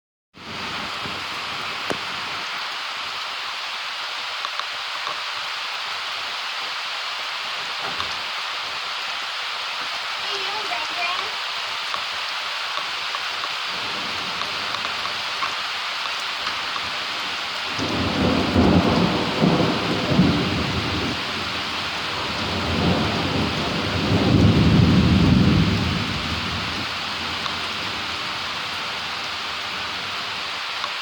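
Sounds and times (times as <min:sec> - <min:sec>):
rain falling: 0:00.4 - 0:31.0
thunder rumbling: 0:13.7 - 0:15.1, 0:16.8 - 0:30.2.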